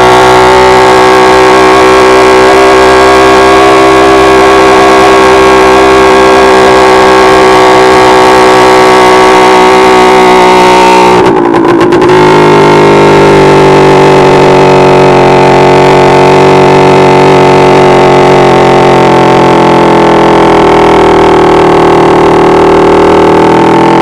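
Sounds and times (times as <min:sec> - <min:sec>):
moped engine at high revs: 0:00.0 - 0:24.0.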